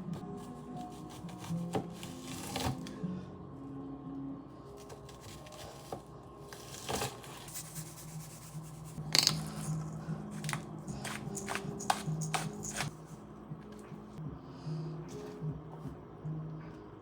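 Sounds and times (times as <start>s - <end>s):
utensils and cookware clinking: 9.0s - 12.9s.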